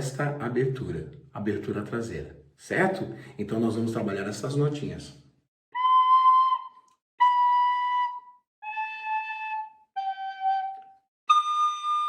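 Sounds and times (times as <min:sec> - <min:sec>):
recorder playing held notes: 0:05.8 - 0:12.0.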